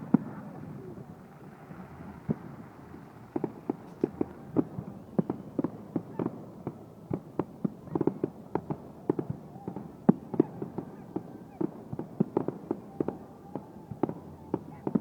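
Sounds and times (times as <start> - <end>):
fireworks exploding: 3.3 - 15.0.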